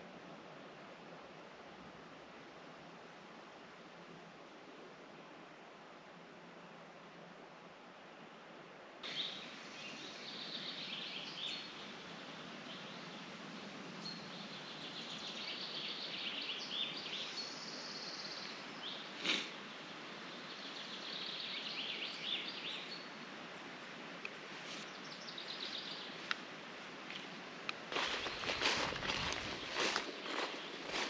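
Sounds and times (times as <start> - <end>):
steady outdoor hiss: 0.0 - 31.0
songbirds trilling: 24.6 - 26.4, 27.9 - 31.0.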